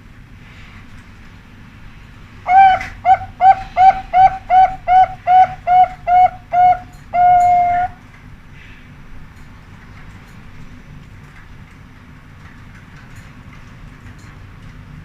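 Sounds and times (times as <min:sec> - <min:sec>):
dove cooing: 0:02.5 - 0:08.0.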